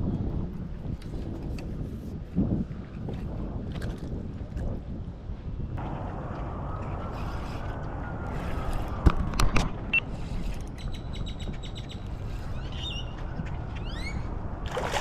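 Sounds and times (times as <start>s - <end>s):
wind and water rushing: 12.2s - 15.0s.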